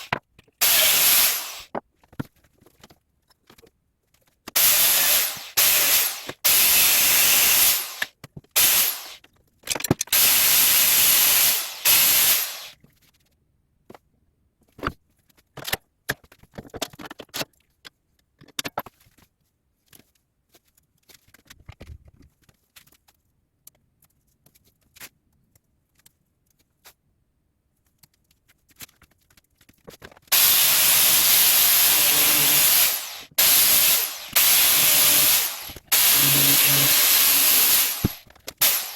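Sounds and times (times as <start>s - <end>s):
angle grinder on metal: 0.0s - 1.7s, 4.6s - 9.2s, 10.2s - 12.8s, 30.3s - 38.9s.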